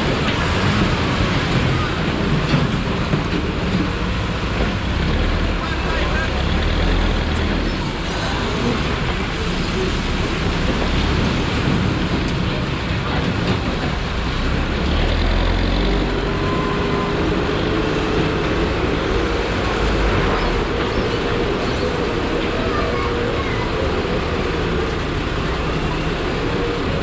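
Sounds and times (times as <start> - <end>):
street noise: 0.0 - 27.0
vehicles rumbling: 0.0 - 27.0.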